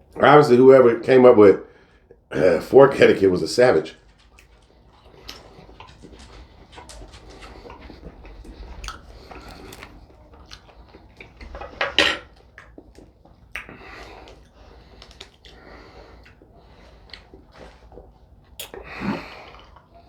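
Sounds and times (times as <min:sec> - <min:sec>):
chewing: 0:04.0 - 0:20.0.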